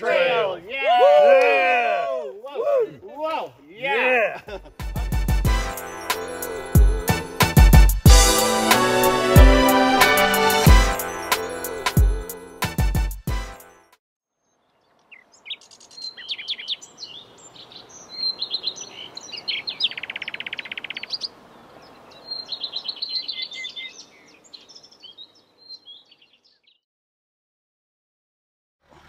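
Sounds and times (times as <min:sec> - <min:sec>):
birds singing: 0:14.4 - 0:26.8.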